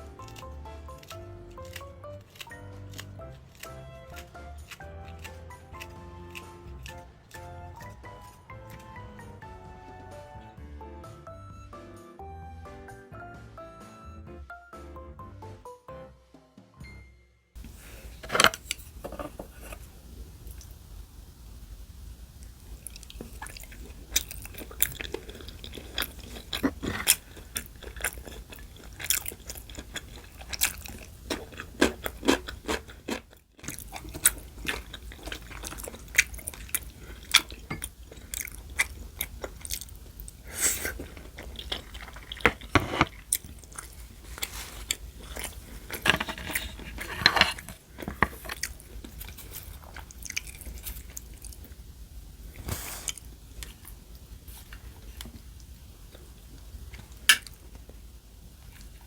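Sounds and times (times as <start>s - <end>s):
chewing and crunching food: 0.0s - 10.0s, 17.6s - 59.0s.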